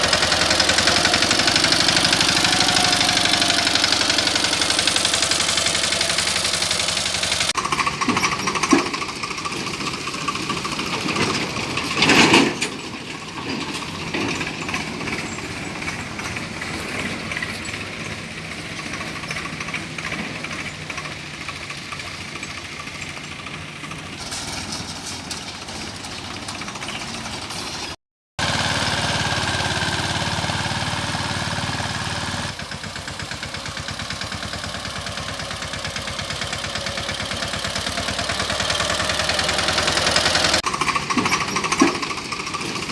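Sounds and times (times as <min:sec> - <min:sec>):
loud engine burst: 0:00.0 - 0:09.4
tractor engine under load: 0:00.0 - 0:42.9.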